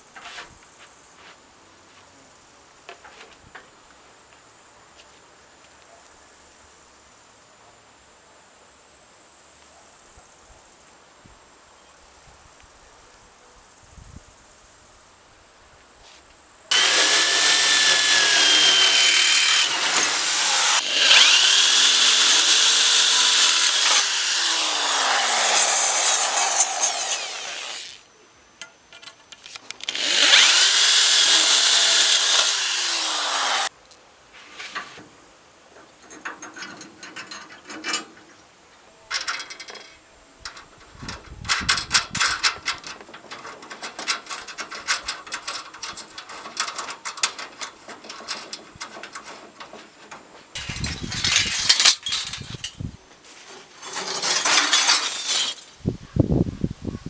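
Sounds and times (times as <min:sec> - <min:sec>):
parts clattering and clicking: 0:16.7 - 0:28.0, 0:28.6 - 0:32.8, 0:35.8 - 0:38.4, 0:39.1 - 0:55.8
power tools running: 0:16.7 - 0:28.0, 0:29.8 - 0:33.7, 0:50.6 - 0:52.8, 0:53.8 - 0:55.7.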